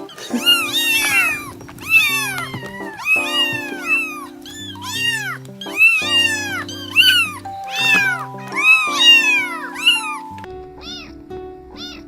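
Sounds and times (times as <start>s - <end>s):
kittens meowing: 0.0s - 11.2s
background music of held notes: 0.0s - 12.0s.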